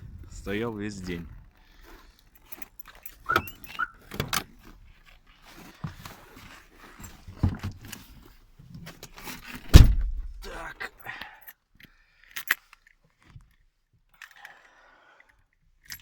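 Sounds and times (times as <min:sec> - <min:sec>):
keys jangling: 0:02.3 - 0:04.4
short squeak: 0:03.1 - 0:04.3.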